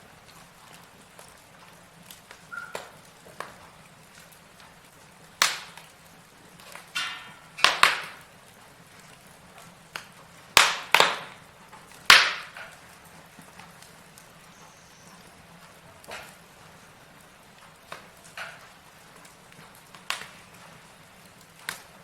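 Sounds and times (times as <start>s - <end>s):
logs crackling and popping in fireplace: 0.0s - 22.0s
whistling hiss from fire: 2.1s - 3.3s, 12.6s - 22.0s.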